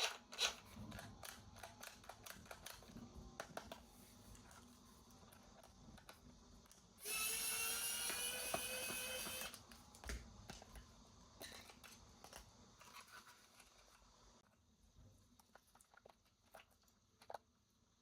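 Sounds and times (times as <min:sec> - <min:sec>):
small electric toy motor whining: 0:07.0 - 0:09.6.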